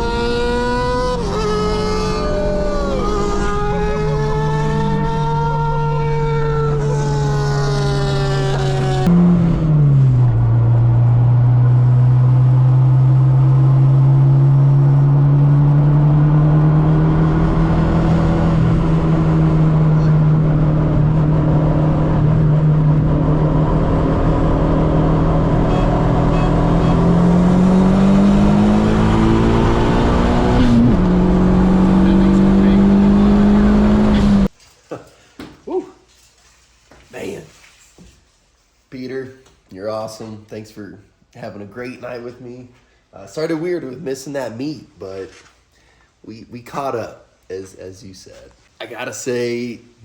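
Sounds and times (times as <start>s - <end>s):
car engine accelerating: 0.0s - 34.6s.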